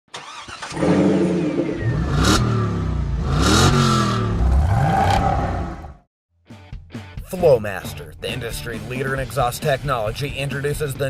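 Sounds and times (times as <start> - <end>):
diesel engine revving: 0.2 - 6.1.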